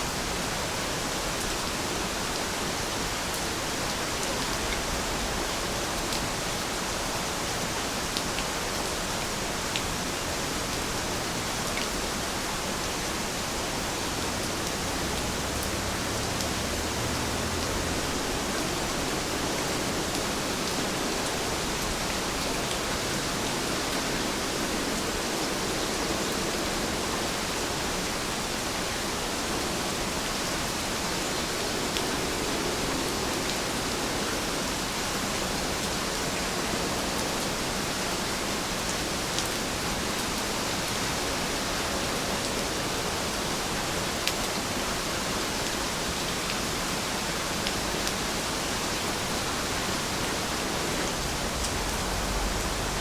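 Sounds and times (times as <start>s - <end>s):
heavy rain hissing: 0.0s - 53.0s.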